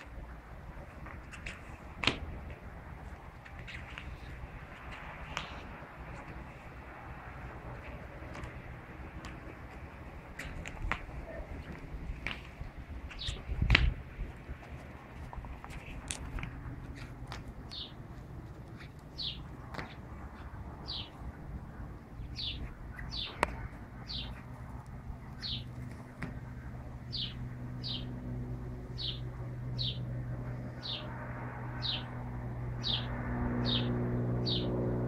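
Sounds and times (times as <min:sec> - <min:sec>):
low hum: 0:00.0 - 0:35.0
bird chirping: 0:17.7 - 0:18.0, 0:18.8 - 0:21.3, 0:22.2 - 0:24.5, 0:25.4 - 0:25.8, 0:27.1 - 0:28.2, 0:29.0 - 0:30.1, 0:30.8 - 0:31.1, 0:31.8 - 0:32.1, 0:32.8 - 0:34.7.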